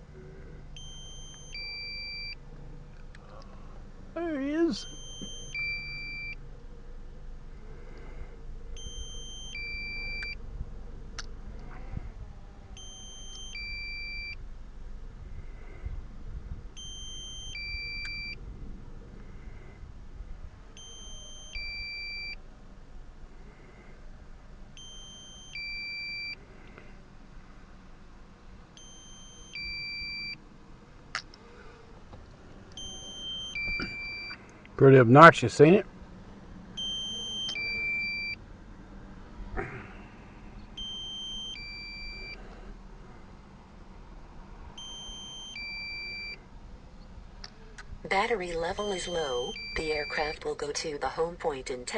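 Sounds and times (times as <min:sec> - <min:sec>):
two-note electronic warning beep: 0:00.8 - 0:02.4, 0:04.8 - 0:06.4, 0:08.8 - 0:10.4, 0:12.8 - 0:14.4, 0:16.8 - 0:18.4, 0:20.8 - 0:22.4, 0:24.8 - 0:26.4, 0:28.8 - 0:30.4, 0:32.8 - 0:34.4, 0:36.8 - 0:38.4, 0:40.8 - 0:42.4, 0:44.8 - 0:46.4, 0:48.8 - 0:50.4.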